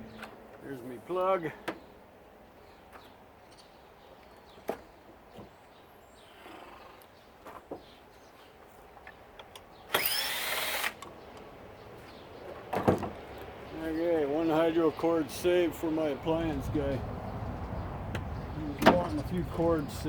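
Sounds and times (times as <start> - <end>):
power drill spinning up: 9.9 - 11.0.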